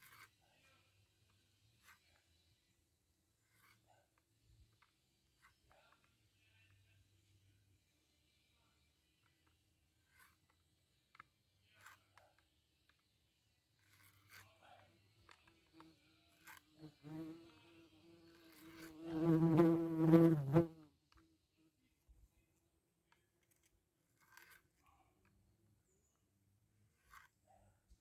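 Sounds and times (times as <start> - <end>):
insect buzzing: 16.8 - 20.8.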